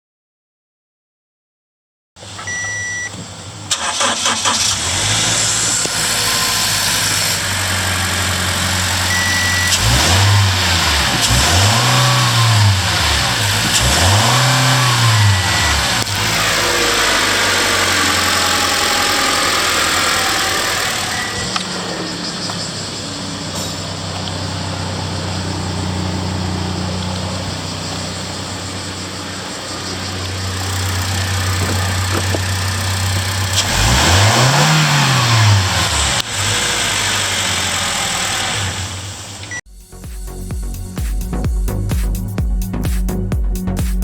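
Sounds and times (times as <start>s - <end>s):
van engine idling and revving: 2.2s - 44.0s
short high beeps: 2.5s - 3.1s, 9.1s - 9.8s
starter cranking: 3.7s - 21.9s.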